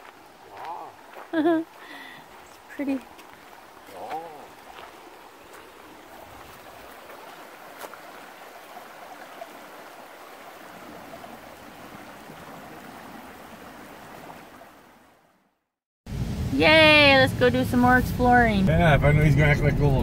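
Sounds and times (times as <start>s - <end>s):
stream flowing: 0.0s - 18.7s.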